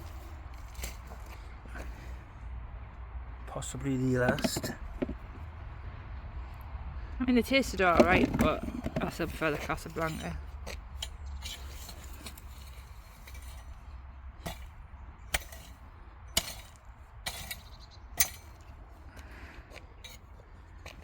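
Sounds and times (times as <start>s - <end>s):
potatoes knocking into container: 4.2s - 5.2s, 7.9s - 9.4s.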